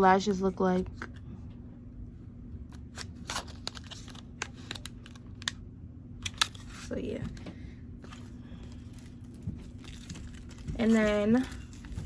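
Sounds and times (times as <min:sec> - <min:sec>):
packaging clicks and rustles: 0:02.8 - 0:05.6, 0:08.0 - 0:12.0.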